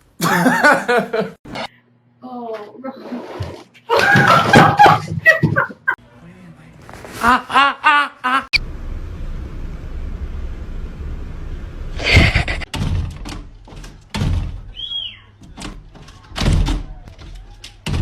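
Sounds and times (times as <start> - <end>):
low steady hum: 8.6 - 12.6
thuds and knocks: 12.1 - 14.7, 15.5 - 18.0.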